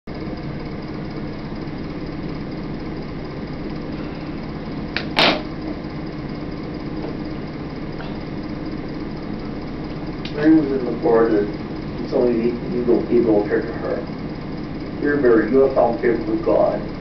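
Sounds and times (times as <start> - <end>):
steady mechanical hum: 0.1 - 17.0
sharp knock: 5.0 - 5.5.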